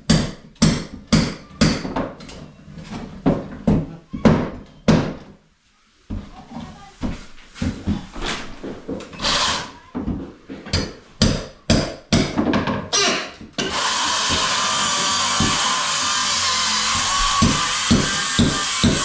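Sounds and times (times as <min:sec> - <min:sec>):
loud whirring tool: 0:09.2 - 0:09.8, 0:13.6 - 0:19.0
tool knocks and scrapes: 0:16.9 - 0:19.0.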